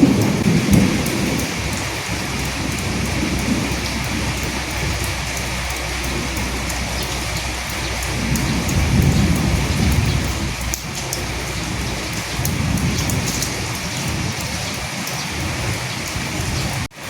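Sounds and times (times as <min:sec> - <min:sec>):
low rumble: 0:00.0 - 0:16.8
drops ticking: 0:00.0 - 0:17.0
rain falling: 0:00.0 - 0:17.0.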